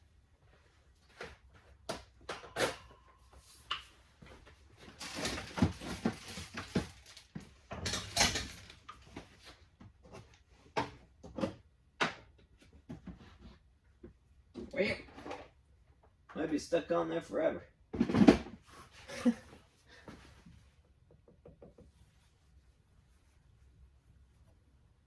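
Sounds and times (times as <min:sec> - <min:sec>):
tools knocking and clicking: 0:21.0 - 0:22.0.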